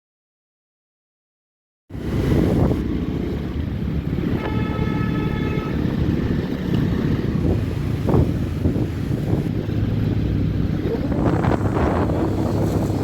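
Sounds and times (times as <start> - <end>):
wind rumble on microphone: 1.9 - 13.0
horn sounding: 4.3 - 6.0.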